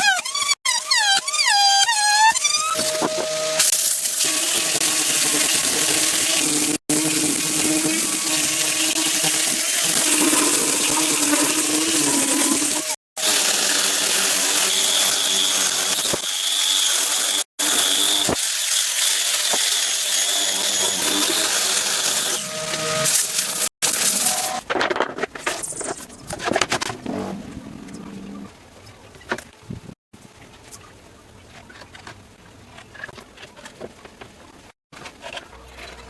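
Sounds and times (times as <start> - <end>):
woodworking power tools running: 11.6 - 23.6.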